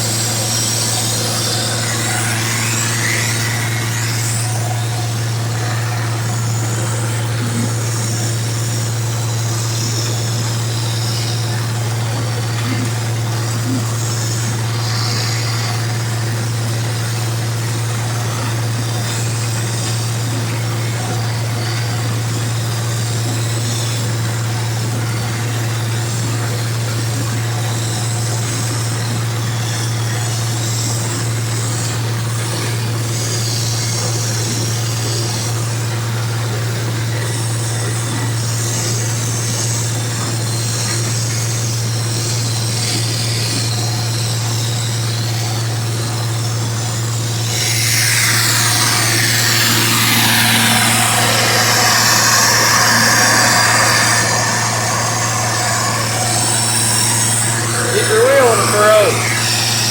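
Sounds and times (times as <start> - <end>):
rush of higher-pitched noise: 0.0 - 5.8, 47.3 - 59.9
diesel tractor engine running: 48.4 - 59.9.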